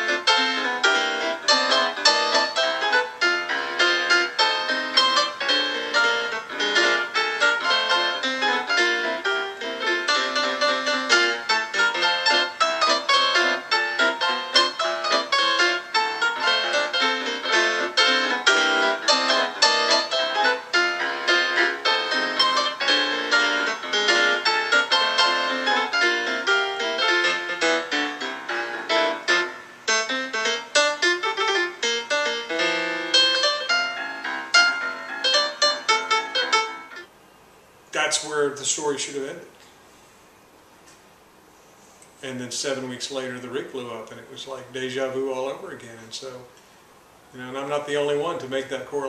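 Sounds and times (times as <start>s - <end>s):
solo piano music: 0.0s - 37.3s.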